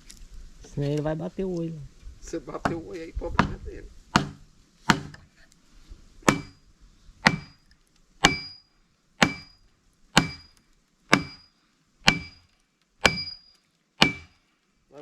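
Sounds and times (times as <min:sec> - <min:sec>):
axe striking a metal wedge: 0:04.2 - 0:05.2, 0:06.3 - 0:06.6, 0:07.2 - 0:07.6, 0:08.2 - 0:08.6, 0:09.2 - 0:09.6, 0:10.2 - 0:11.5, 0:12.1 - 0:14.4.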